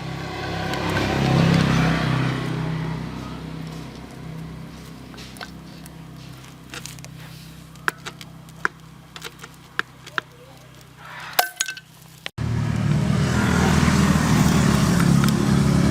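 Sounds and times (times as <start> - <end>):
tractor engine running: 0.0 - 11.2, 11.9 - 15.9.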